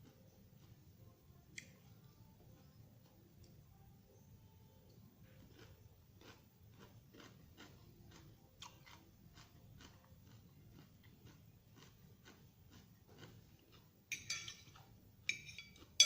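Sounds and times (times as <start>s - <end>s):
person chewing crunchy salad: 4.9s - 16.0s.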